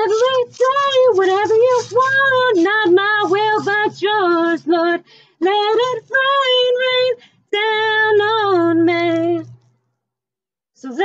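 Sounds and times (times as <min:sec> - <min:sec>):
woman singing unaccompanied: 0:00.0 - 0:09.6
singer breathing: 0:05.0 - 0:05.4, 0:07.2 - 0:07.5.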